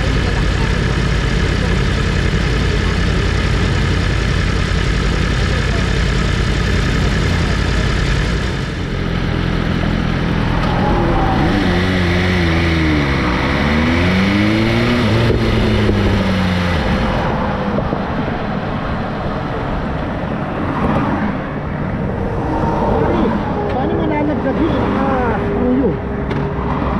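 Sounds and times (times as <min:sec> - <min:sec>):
engine idling and revving: 0:00.0 - 0:26.9.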